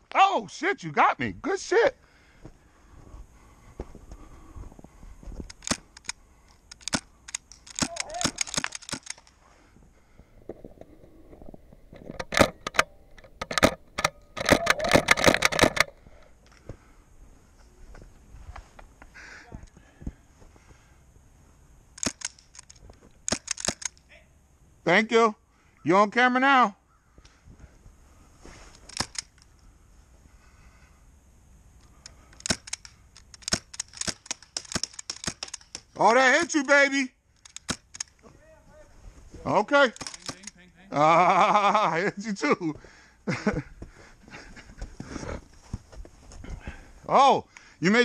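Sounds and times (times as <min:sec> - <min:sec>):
airsoft guns firing: 0:06.8 - 0:09.2.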